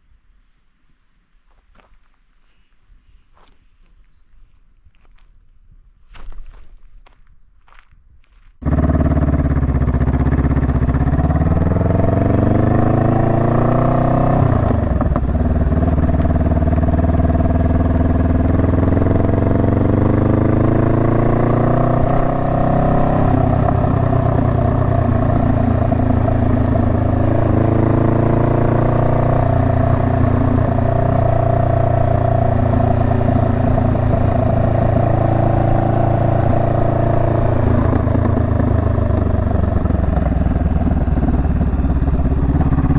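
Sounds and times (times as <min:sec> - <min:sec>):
motorcycle engine accelerating: 0:08.6 - 0:42.9.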